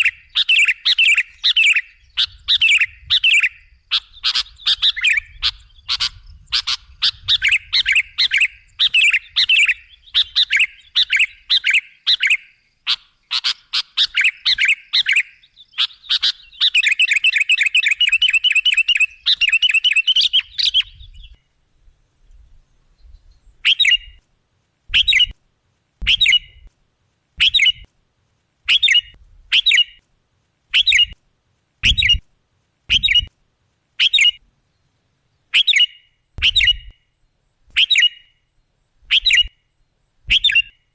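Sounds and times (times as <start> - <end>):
bulbul chirping: 24.9 - 25.3, 26.0 - 26.7, 27.4 - 27.9, 28.7 - 30.0, 30.7 - 31.2, 31.8 - 32.2, 32.9 - 33.3, 35.5 - 37.0, 37.7 - 38.3, 39.1 - 39.5, 40.3 - 40.8.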